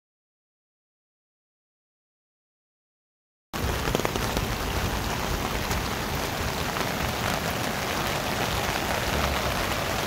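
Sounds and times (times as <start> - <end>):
heavy rain falling: 3.6 - 10.0.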